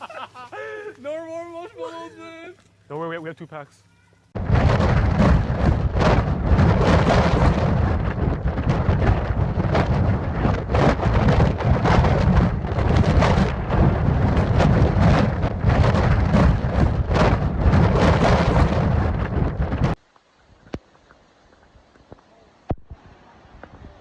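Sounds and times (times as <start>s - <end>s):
wind: 0.0s - 24.0s
crackling surges: 4.3s - 23.7s
deep rumble: 4.4s - 20.0s.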